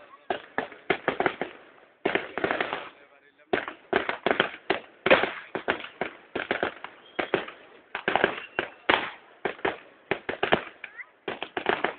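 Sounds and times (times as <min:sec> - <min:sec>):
fireworks bangs echoing: 0:00.0 - 0:11.9.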